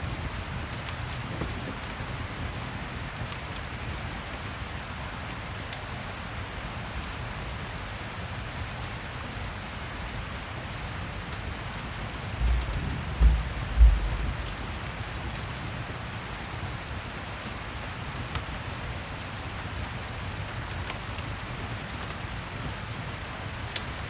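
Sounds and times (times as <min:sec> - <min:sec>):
fireplace crackles: 0:00.0 - 0:24.0
steady rain: 0:00.0 - 0:24.0
low rumble: 0:12.2 - 0:16.0
low thump: 0:12.4 - 0:15.2.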